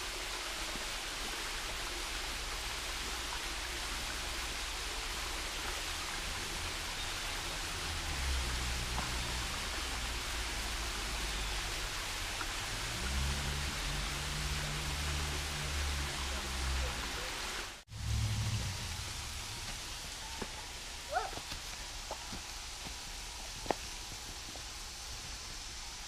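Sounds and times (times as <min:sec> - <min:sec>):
flowing water rushing: 0:00.0 - 0:26.0
low rumble: 0:12.6 - 0:20.3.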